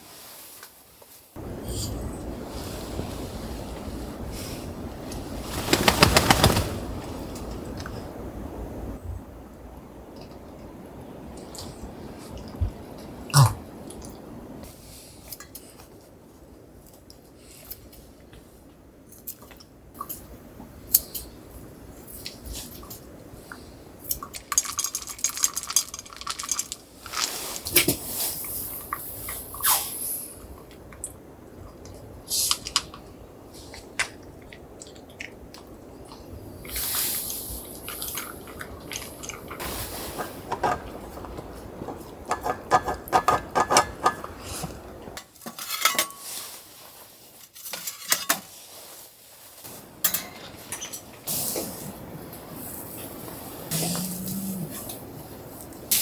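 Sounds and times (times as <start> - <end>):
scraping and handling noise: 24.1 - 29.5, 36.7 - 54.1
dishes and utensils clattering: 24.3 - 28.0, 38.0 - 46.6, 47.5 - 48.6, 50.0 - 51.3
metal dishes and utensils clinking: 24.4 - 27.9, 45.4 - 46.6, 47.5 - 48.6, 50.0 - 51.2.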